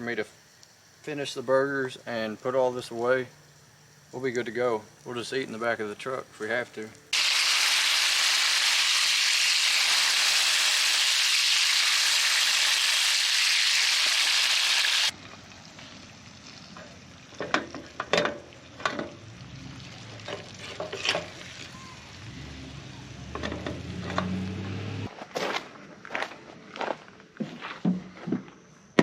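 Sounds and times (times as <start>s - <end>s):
patties sizzling on a stove: 0.0s - 22.8s.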